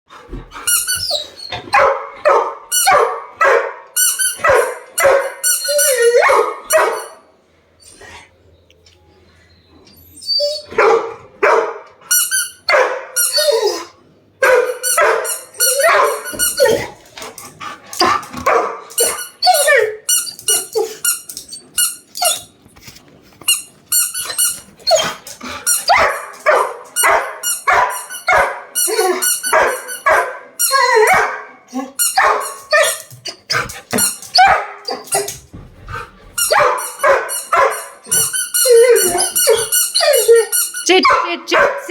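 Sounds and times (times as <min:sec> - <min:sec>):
dog barking and whining: 0:00.6 - 0:07.2, 0:10.0 - 0:17.1, 0:17.9 - 0:22.6, 0:23.6 - 0:41.9
dog barking: 0:01.7 - 0:05.4, 0:06.1 - 0:07.2, 0:10.7 - 0:11.9, 0:12.7 - 0:13.2, 0:14.4 - 0:16.3, 0:18.4 - 0:19.2, 0:25.9 - 0:28.7, 0:29.5 - 0:31.5, 0:32.2 - 0:32.9, 0:34.4 - 0:34.8, 0:36.5 - 0:38.0, 0:41.0 - 0:41.9.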